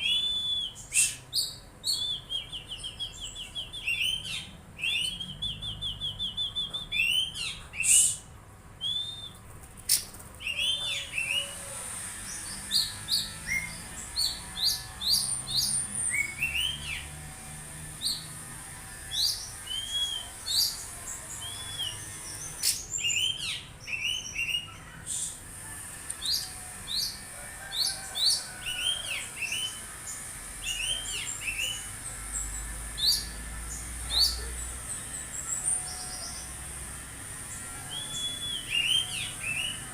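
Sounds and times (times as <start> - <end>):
bird singing chirps and whistles: 0.0 - 8.2, 8.8 - 9.4, 19.2 - 20.8, 21.4 - 24.7, 37.9 - 39.9.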